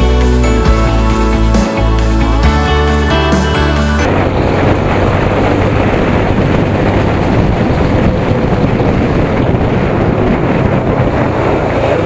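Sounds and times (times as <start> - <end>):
motorcycle engine hum: 0.0 - 12.0
wind rushing over microphone: 4.0 - 12.0.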